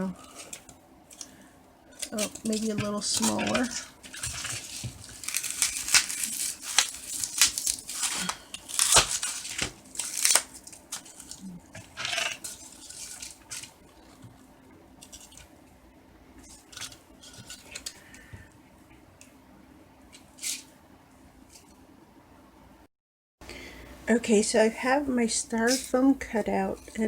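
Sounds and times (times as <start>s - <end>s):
scissors cutting styrofoam: 2.0s - 13.7s.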